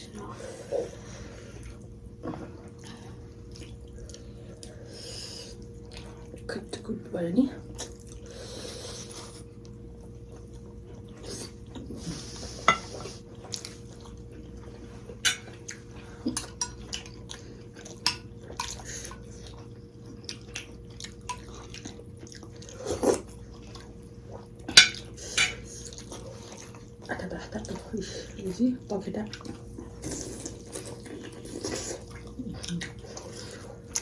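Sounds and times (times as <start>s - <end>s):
faint steady hum: 0.0s - 34.0s
chewing: 0.6s - 6.5s, 7.6s - 28.6s, 29.2s - 34.0s
cutlery clinking against bowls: 12.6s - 13.0s, 15.2s - 15.6s, 16.3s - 17.1s, 24.7s - 25.6s
slurping soup: 29.9s - 34.0s.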